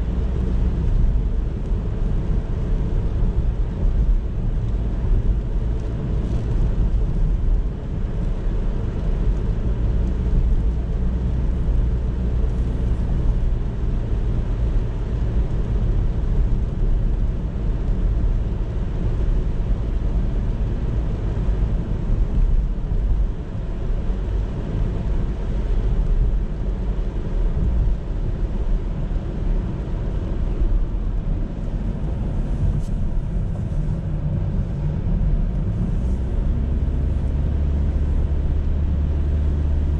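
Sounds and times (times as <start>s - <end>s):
car driving on road: 0.0s - 39.9s.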